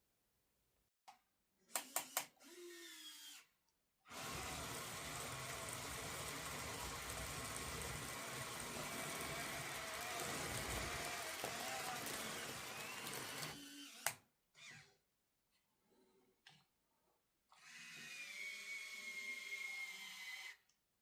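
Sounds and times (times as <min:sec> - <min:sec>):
small electric motor whirring: 0:04.1 - 0:14.9.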